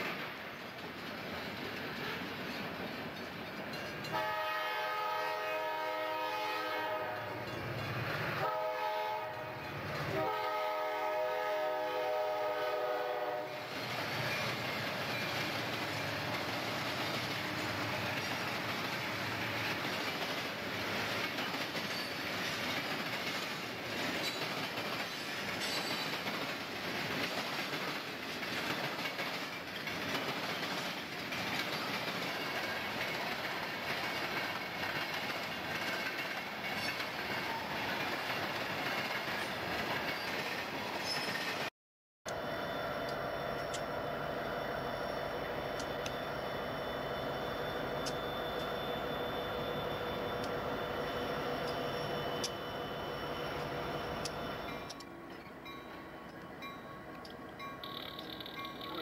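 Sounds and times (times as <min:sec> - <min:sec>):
train wheels clickety-clack: 0:00.0 - 0:08.6, 0:09.2 - 0:11.8, 0:12.4 - 0:41.7, 0:49.8 - 0:59.0
train horn blasts: 0:04.1 - 0:07.5, 0:08.4 - 0:13.7.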